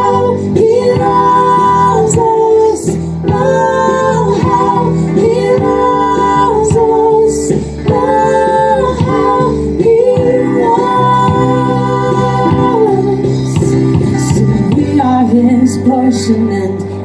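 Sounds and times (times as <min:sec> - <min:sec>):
guitar accompaniment: 0:00.0 - 0:17.0
person singing worship music: 0:00.0 - 0:17.0.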